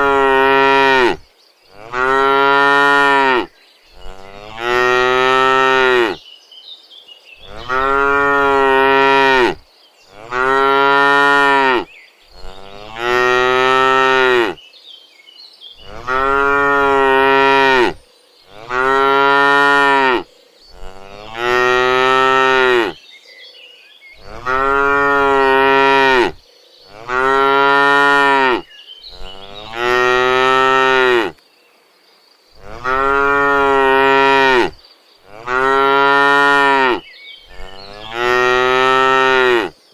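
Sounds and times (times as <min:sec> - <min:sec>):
cattle mooing: 0:00.0 - 0:01.2, 0:01.8 - 0:06.2, 0:07.4 - 0:14.6, 0:15.8 - 0:20.2, 0:20.8 - 0:23.0, 0:24.2 - 0:31.4, 0:32.6 - 0:39.7.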